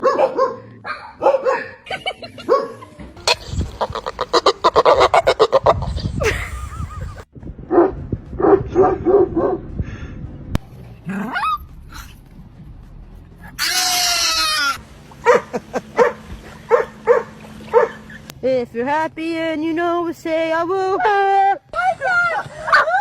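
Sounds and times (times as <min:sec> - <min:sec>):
dog yipping whining and barking: 0:11.3 - 0:11.7, 0:13.4 - 0:18.2.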